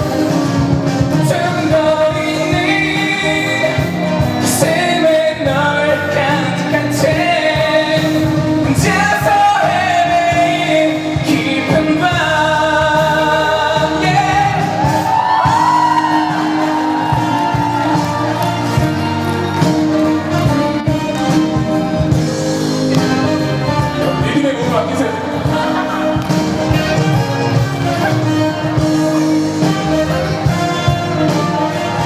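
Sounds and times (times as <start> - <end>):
man singing pop ballad: 0.0 - 21.3, 23.1 - 27.2
band accompaniment: 0.0 - 32.0.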